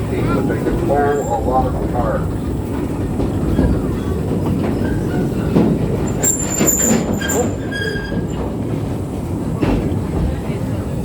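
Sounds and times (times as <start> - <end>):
train wheels rumbling on rail: 0.0 - 11.0
high-pitched wheel squeal: 6.1 - 8.4.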